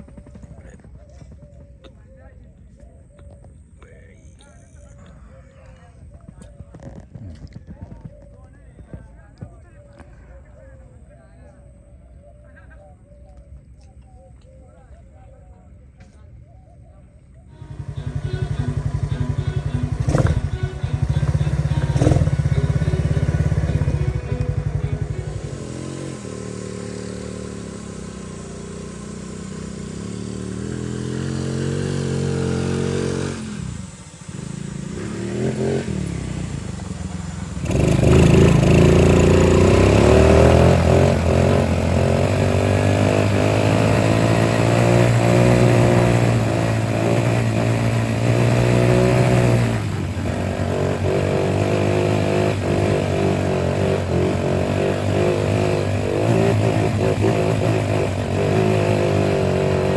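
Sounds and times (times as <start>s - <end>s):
vehicle engine revving: 17.5s - 59.9s.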